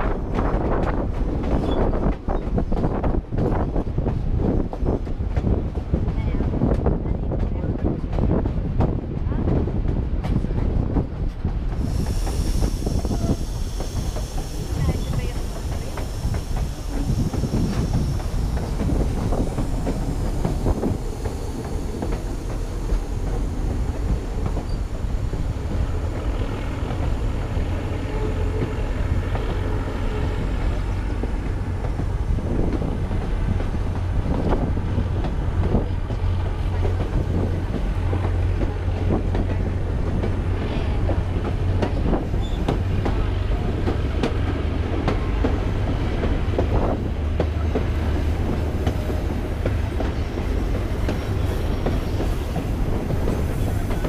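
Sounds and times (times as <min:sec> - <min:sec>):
train wheels rumbling on rails: 0:00.0 - 0:54.0
faint wheel squeal: 0:42.4 - 0:42.7.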